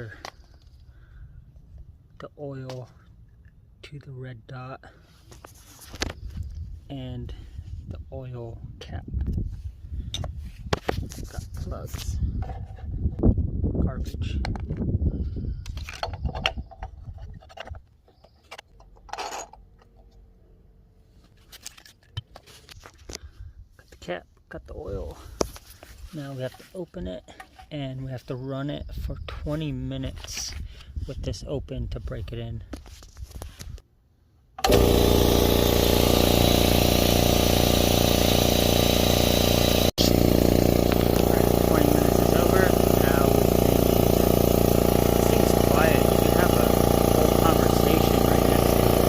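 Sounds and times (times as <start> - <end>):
air compressor pump running: 34.6 - 49.0.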